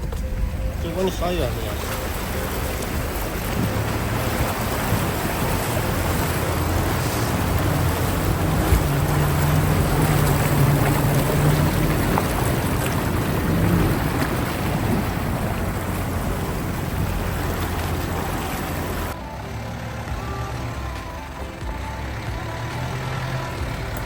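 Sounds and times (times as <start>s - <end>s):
car engine hum: 0.0s - 24.0s
rushing road and wind noise: 0.0s - 24.0s.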